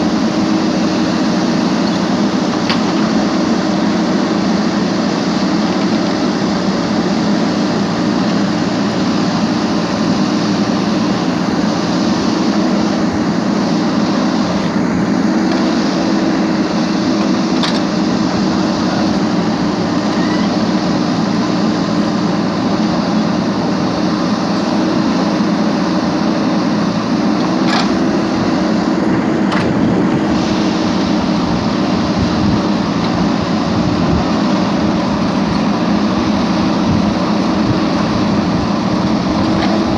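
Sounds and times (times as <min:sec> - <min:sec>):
loud mechanical hum: 0:00.0 - 0:39.9.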